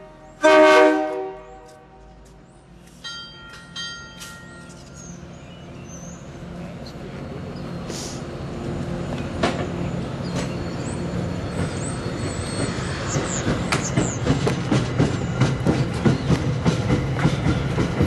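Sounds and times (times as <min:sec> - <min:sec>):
train running hum: 0:00.0 - 0:18.0
wheel squeals: 0:09.7 - 0:14.5
wheels clicking over rail joints: 0:11.3 - 0:18.0.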